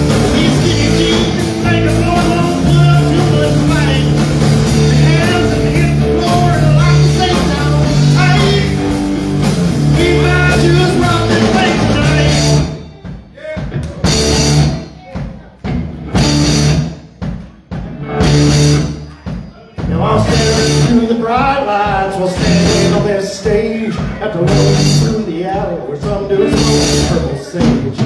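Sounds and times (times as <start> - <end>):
live rock band playing loudly: 0.0 - 28.0.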